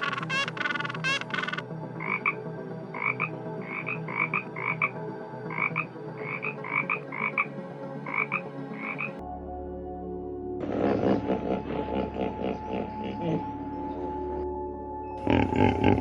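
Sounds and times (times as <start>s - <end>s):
short high-pitched animal calls: 0.0s - 1.6s
harsh animal calls: 0.0s - 2.4s, 10.6s - 14.4s, 15.2s - 16.0s.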